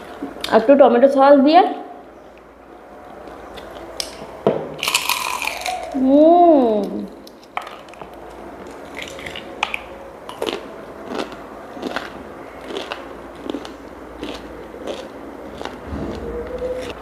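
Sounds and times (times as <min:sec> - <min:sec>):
crunching fried chicken: 0:04.8 - 0:06.0, 0:07.2 - 0:17.0.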